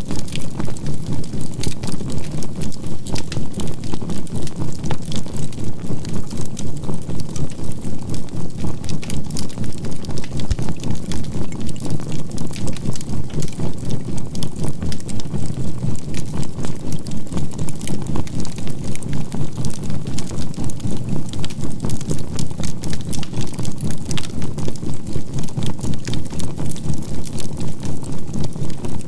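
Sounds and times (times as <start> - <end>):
campfire crackling and snapping: 8.7 - 16.2, 16.9 - 24.5.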